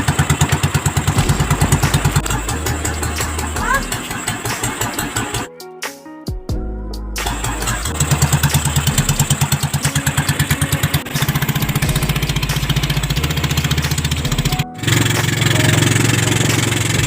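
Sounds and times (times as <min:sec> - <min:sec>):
small engine chugging: 0:07.3 - 0:17.0.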